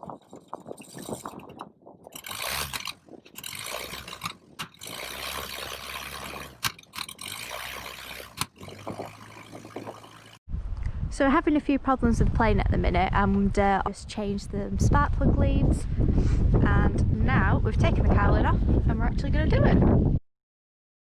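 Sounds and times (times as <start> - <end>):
aircraft engine hum: 0.0 - 10.4.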